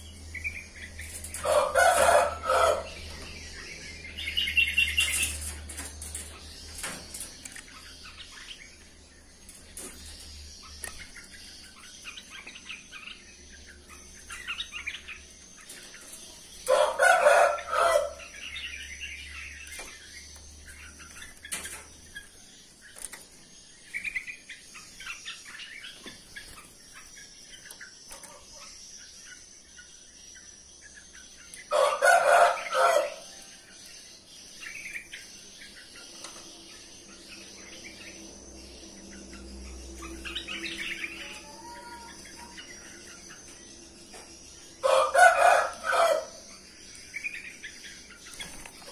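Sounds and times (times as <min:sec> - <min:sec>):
small birds chirping: 0:00.0 - 0:48.9
rooster crowing: 0:01.4 - 0:03.0, 0:16.7 - 0:18.2, 0:31.7 - 0:33.3, 0:44.8 - 0:46.4.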